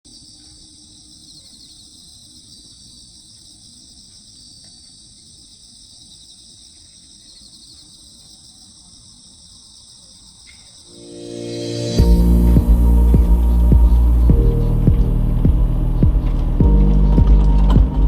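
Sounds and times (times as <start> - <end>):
crickets chirping: 0.1 - 18.0
low rumble: 11.2 - 18.0.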